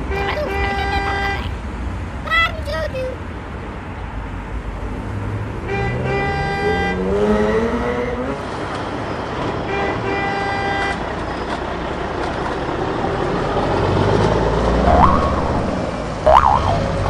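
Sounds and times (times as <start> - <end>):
vehicle horn toot: 5.7 - 7.1
vehicle noise rumble: 10.4 - 17.0
short rising tone: 14.7 - 17.0.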